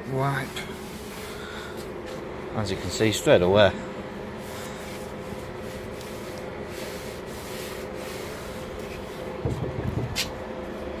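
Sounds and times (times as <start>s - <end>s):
steady hum: 0.0s - 11.0s
cloth rubbing on plastic: 4.4s - 9.4s.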